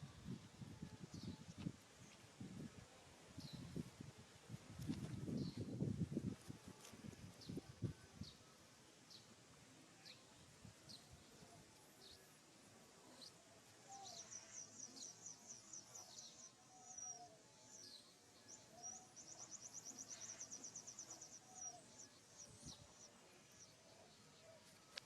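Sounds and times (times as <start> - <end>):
bird chirps: 13.9 - 25.0.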